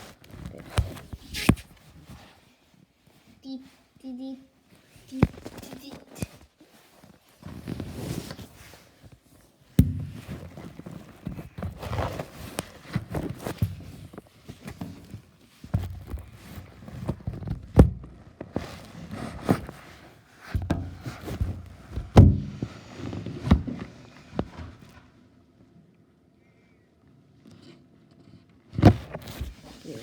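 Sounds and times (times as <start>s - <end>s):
knocks and thumps: 20.6s - 22.7s.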